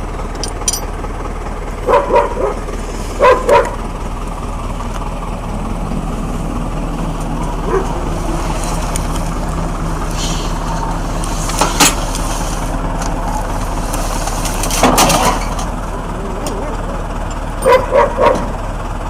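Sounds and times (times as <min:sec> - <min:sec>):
engine running steadily: 0:00.0 - 0:19.0
sharp engine knocks: 0:14.3 - 0:15.8.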